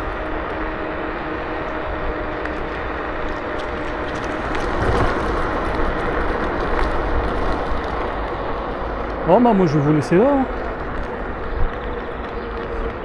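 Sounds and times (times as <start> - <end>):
wind rushing over microphone: 0.0 - 13.0
tyre rumble: 2.6 - 9.2.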